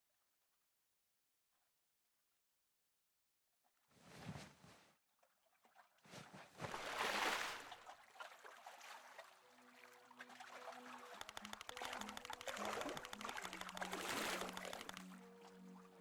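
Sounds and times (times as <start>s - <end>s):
rushing water: 6.7s - 16.0s
soft music with low notes: 7.8s - 16.0s
fast ticking rhythm: 11.2s - 15.1s.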